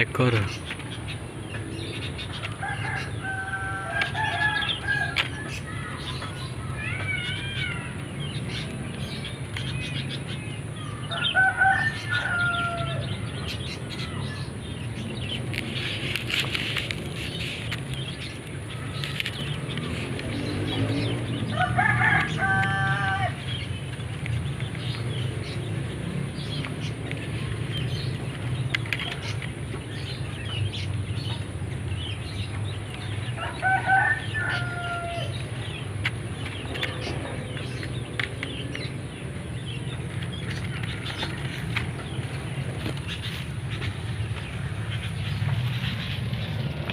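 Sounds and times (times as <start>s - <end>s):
small birds chirping: 0.0s - 46.9s
rooster crowing: 2.6s - 5.6s, 11.1s - 13.2s, 21.5s - 23.4s, 33.4s - 35.4s.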